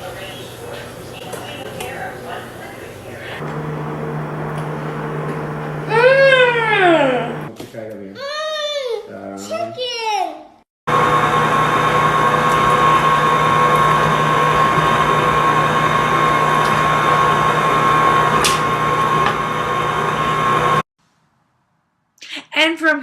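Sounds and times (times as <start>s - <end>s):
electric hand mixer whining: 3.4s - 7.5s, 10.9s - 20.8s.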